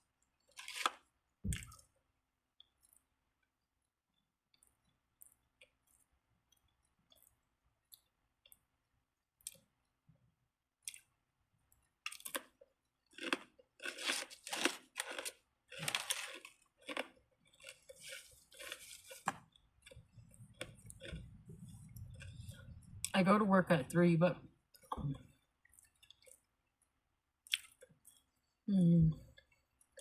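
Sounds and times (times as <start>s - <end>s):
person chewing and crunching: 0.4s - 1.8s, 11.7s - 23.1s, 25.6s - 26.5s, 27.4s - 28.4s.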